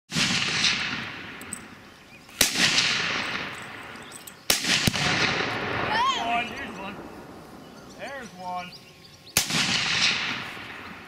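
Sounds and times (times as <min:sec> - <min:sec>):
explosive blasts with rolling echo: 0:00.1 - 0:01.4, 0:02.4 - 0:03.9, 0:04.5 - 0:08.7, 0:09.3 - 0:11.0
rifle shots: 0:00.1 - 0:01.6, 0:02.4 - 0:06.0, 0:09.4 - 0:11.0.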